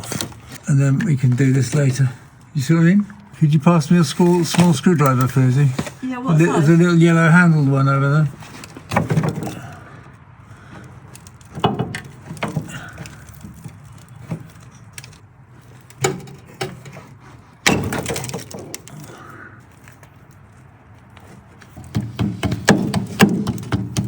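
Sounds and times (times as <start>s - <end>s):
metal tools clinking and knocking: 11.1s - 21.9s.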